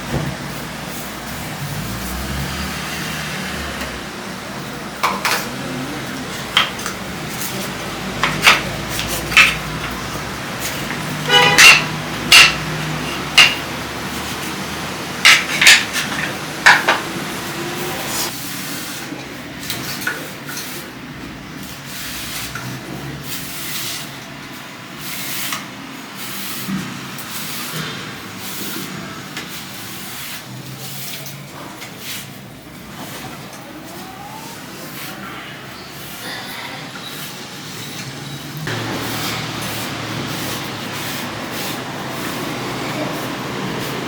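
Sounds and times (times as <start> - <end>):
objects knocking and clattering: 6.3 - 14.5, 15.1 - 17.3.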